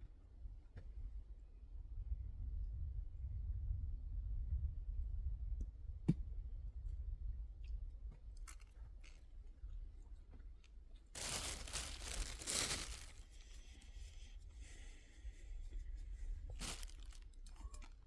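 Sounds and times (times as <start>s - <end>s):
paper crinkling and tearing: 11.2s - 13.3s, 16.6s - 18.0s.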